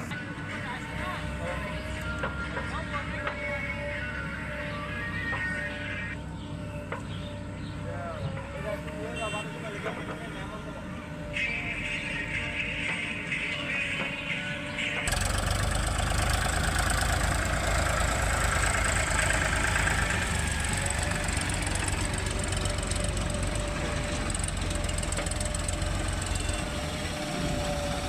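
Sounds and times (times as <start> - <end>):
diesel engine of heavy machinery: 0.0 - 28.0.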